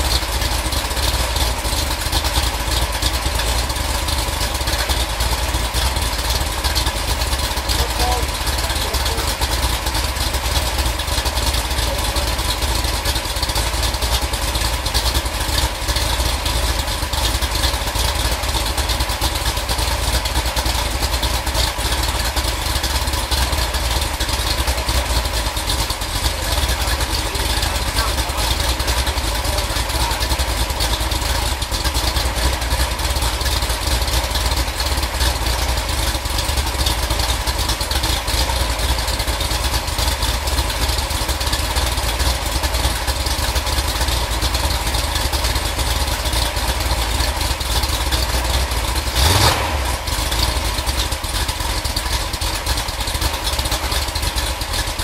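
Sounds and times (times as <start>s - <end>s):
vee-eight engine running: 0.0s - 55.0s.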